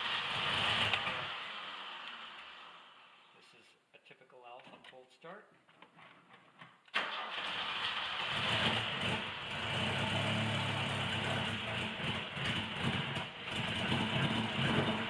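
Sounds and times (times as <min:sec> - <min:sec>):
car engine idling unevenly: 0:00.0 - 0:03.0, 0:07.0 - 0:15.0.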